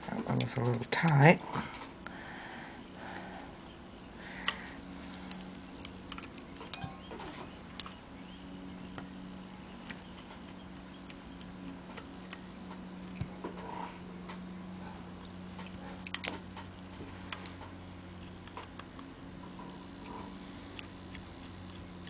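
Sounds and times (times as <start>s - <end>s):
low hum: 0.0s - 22.0s
small metal parts clicking: 4.4s - 8.0s, 15.2s - 17.6s.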